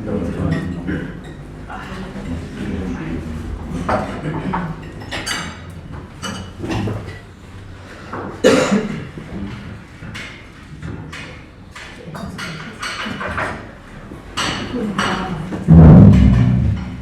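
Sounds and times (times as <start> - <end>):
dishes and cutlery clinking: 10.0 - 15.7.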